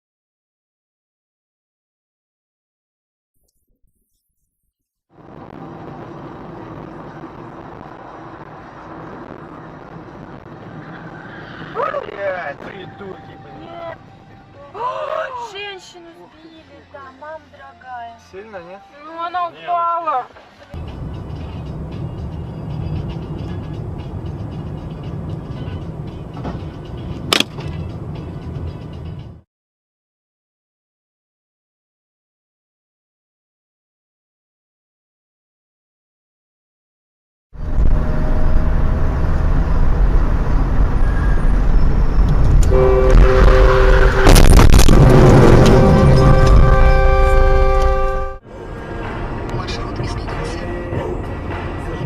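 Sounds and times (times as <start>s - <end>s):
car engine and road noise: 5.1s - 29.4s, 37.6s - 52.0s
sharp click: 27.3s - 27.8s.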